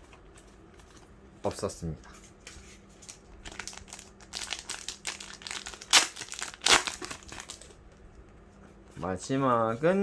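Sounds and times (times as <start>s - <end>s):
foil wrapper crinkling: 3.0s - 7.8s.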